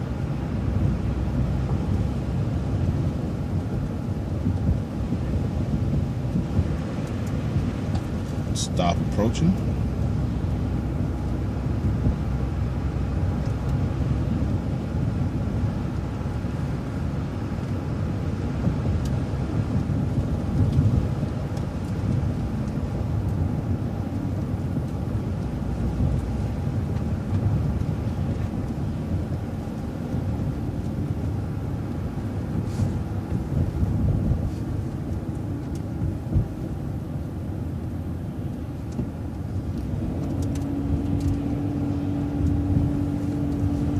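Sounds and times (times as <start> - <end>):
bus engine and road rumble: 0.0 - 43.9.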